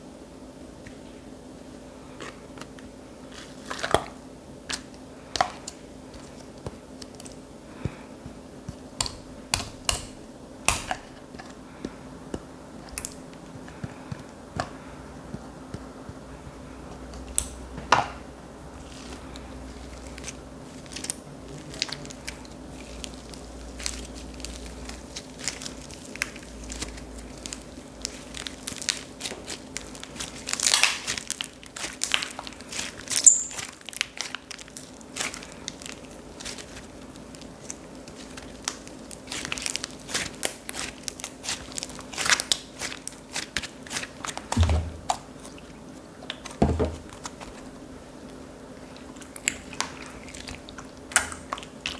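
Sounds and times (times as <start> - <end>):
slime crackling and popping: 9.0 - 11.2, 18.8 - 45.5, 49.2 - 51.9.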